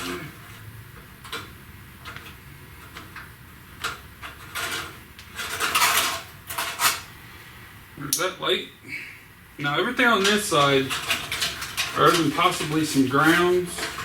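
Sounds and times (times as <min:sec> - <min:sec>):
scraping rustle: 0:02.0 - 0:07.4, 0:10.0 - 0:14.0.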